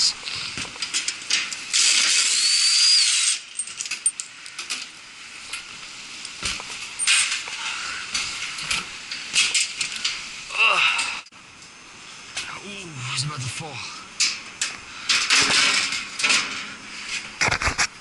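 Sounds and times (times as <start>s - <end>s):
loud hiss: 1.7s - 3.5s.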